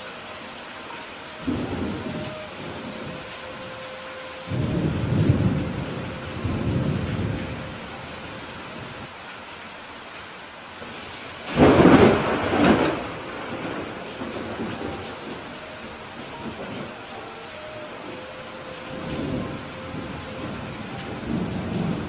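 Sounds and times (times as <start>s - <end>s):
steady rain falling: 0.0s - 22.0s
thunder rumbling: 1.3s - 9.1s, 11.0s - 22.0s
sharp peal of thunder: 11.4s - 15.5s.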